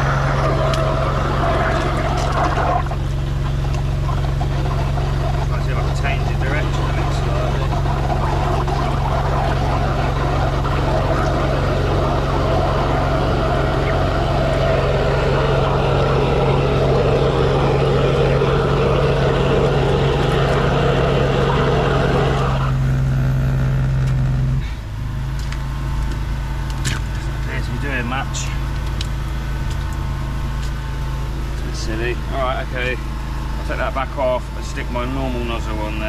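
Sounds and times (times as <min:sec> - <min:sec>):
water rushing through hose: 0:00.0 - 0:22.8
drain jetter engine humming: 0:00.0 - 0:36.0.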